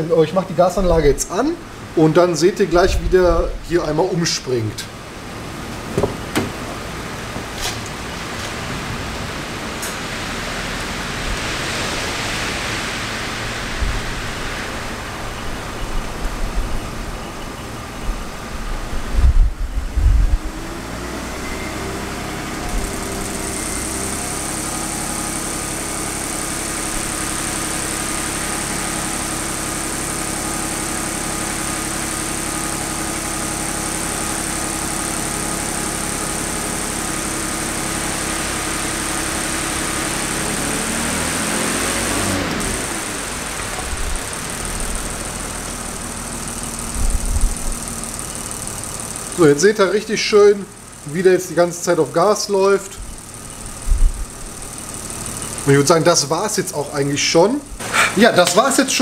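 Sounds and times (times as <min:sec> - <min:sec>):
car engine idling and speeding up: 0:04.8 - 0:59.0
loud low thumps: 0:05.8 - 0:07.6.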